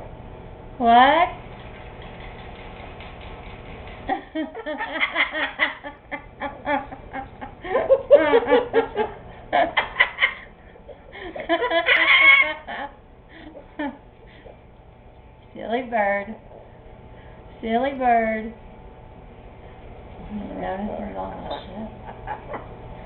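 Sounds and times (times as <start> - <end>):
person laughing: 4.2 - 14.0, 21.6 - 22.8.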